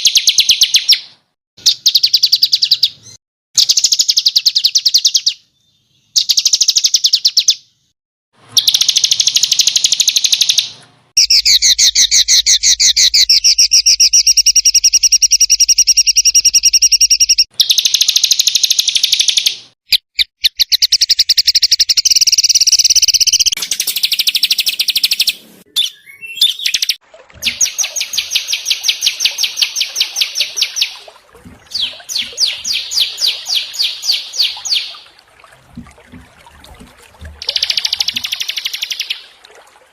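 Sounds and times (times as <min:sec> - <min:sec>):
songbirds trilling: 0:23.7 - 0:39.4.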